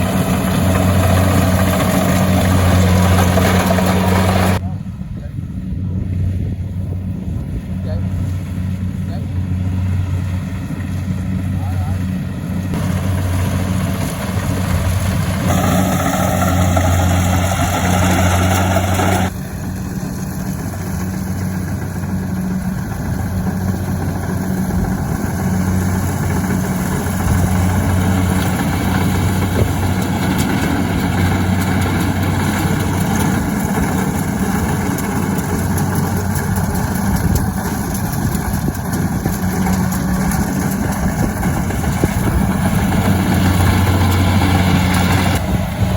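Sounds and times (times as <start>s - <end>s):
engine humming: 0.0s - 45.9s.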